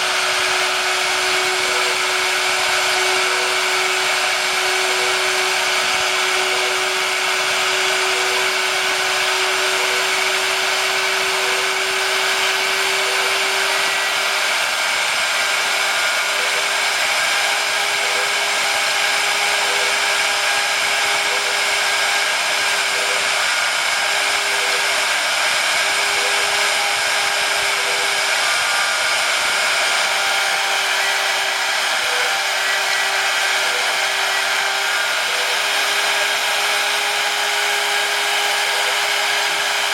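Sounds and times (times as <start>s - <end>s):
spindle motor whirring: 0.0s - 39.9s.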